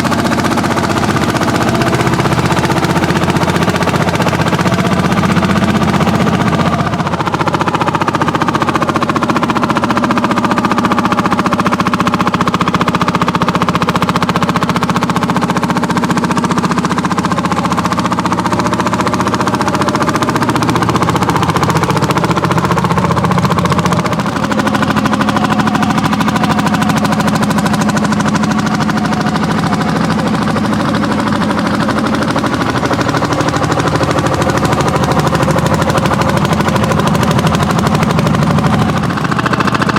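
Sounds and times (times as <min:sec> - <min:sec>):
tractor engines running hard: 0:00.0 - 0:39.9.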